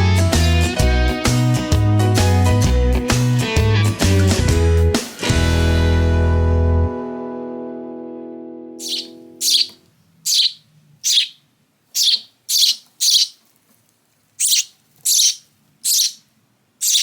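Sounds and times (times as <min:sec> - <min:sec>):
sparrow chirping: 0:08.8 - 0:13.4, 0:14.4 - 0:17.0.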